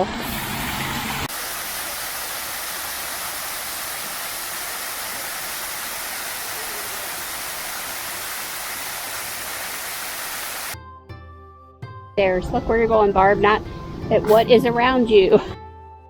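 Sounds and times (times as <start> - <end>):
water pouring down waterfall: 0.0 - 10.8.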